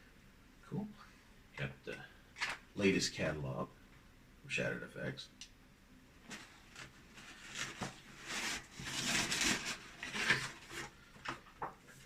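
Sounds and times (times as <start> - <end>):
paper and packaging rustling: 6.2 - 12.0.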